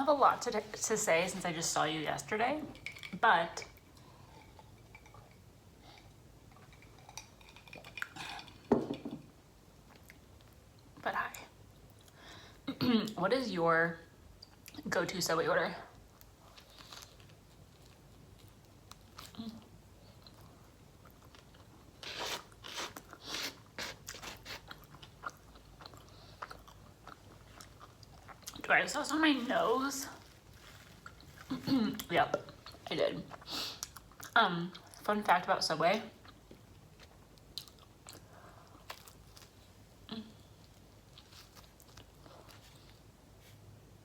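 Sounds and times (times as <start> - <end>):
small food crunches: 16.2 - 19.6
crunchy chewing: 16.4 - 28.6.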